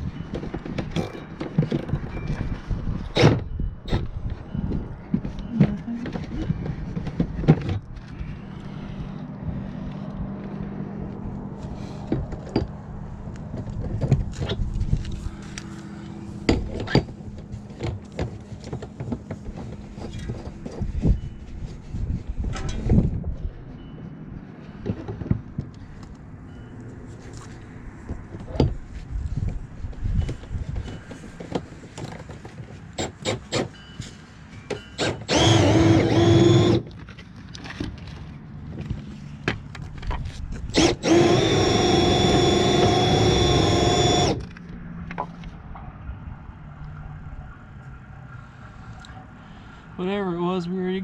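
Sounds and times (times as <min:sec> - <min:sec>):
knocks and clatter of work: 0:00.1 - 0:08.2, 0:12.0 - 0:14.8, 0:16.4 - 0:21.3, 0:28.0 - 0:45.9
power tool running: 0:35.0 - 0:36.9, 0:40.7 - 0:44.5.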